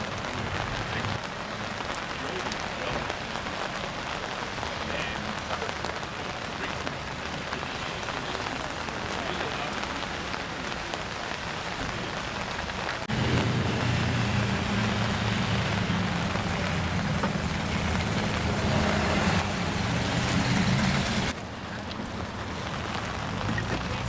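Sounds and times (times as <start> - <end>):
rain falling: 0.0 - 24.0
car engine running: 13.1 - 21.3.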